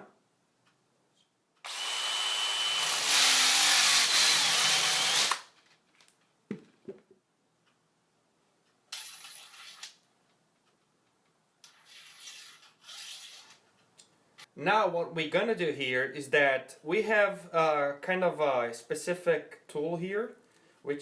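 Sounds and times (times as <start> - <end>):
high-speed drill spinning: 1.6 - 5.4.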